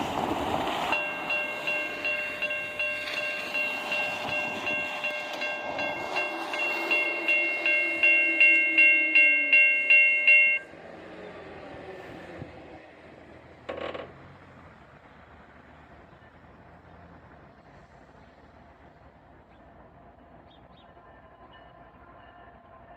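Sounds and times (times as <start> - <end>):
railroad warning bell ringing: 0.9 - 10.8, 21.0 - 22.9.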